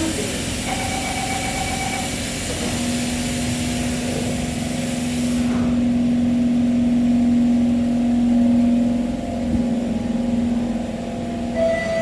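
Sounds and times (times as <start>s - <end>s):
hiss: 2.0s - 5.9s
train droning tone: 5.8s - 12.0s.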